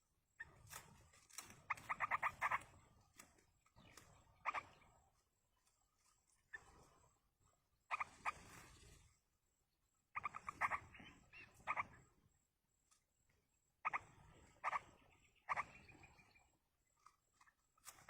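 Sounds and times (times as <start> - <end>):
birds rapid chattering calls: 0.4 - 5.2, 7.8 - 9.0, 10.1 - 12.1, 13.8 - 16.5.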